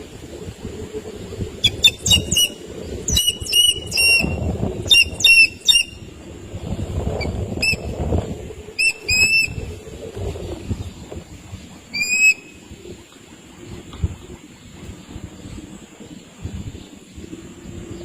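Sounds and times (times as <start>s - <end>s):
low rumbling noise: 0.0s - 18.0s
bird short sharp high calls: 1.6s - 6.0s, 11.9s - 12.6s.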